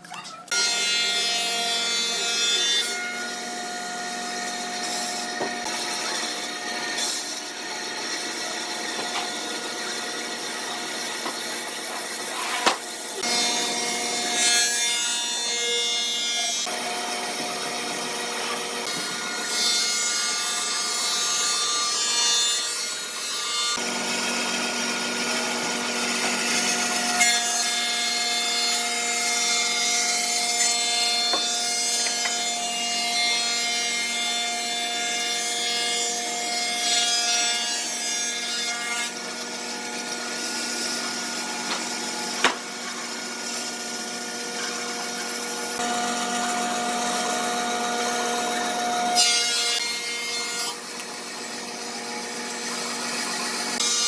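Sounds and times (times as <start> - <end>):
power tool grinding wood: 0.4 - 54.0.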